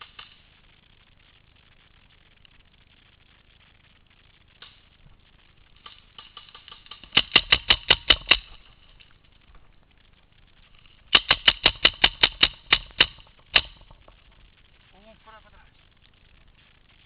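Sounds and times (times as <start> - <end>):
paintball marker firing shots: 5.8 - 9.0, 11.1 - 14.4.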